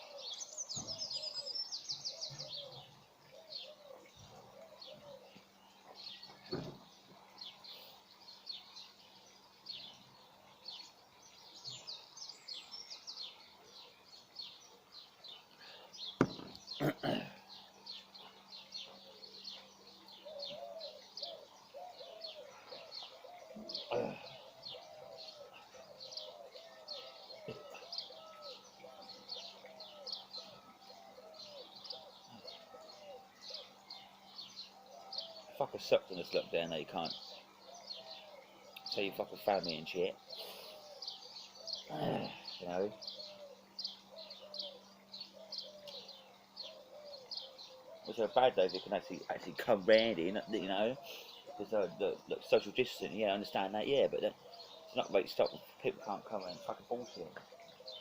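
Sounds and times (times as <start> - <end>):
birds chirping: 0.0 - 58.0
sharp knocks: 16.2 - 16.6
bird warbling phrase: 41.8 - 43.1, 48.0 - 57.4.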